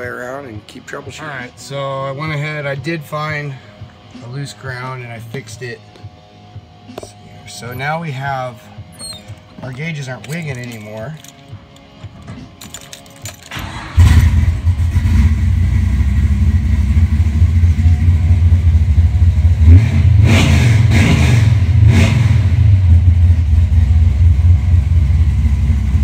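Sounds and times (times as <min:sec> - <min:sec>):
car engine starting and idling: 0:09.2 - 0:26.0
engine revving: 0:13.6 - 0:26.0.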